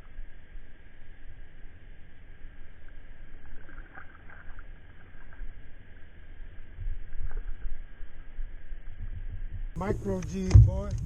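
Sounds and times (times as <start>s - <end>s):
wind rumble on microphone: 6.6s - 11.0s.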